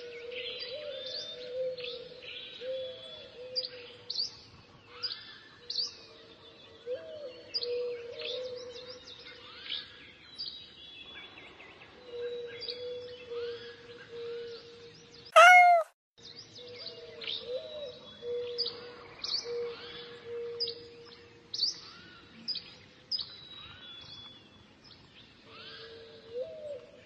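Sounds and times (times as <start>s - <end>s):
small birds chirping: 15.4s - 15.9s.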